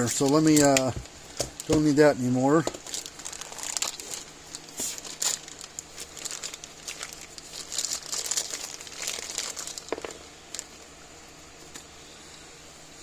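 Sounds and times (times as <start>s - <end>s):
packaging crinkling: 0.0s - 2.0s, 2.6s - 10.8s.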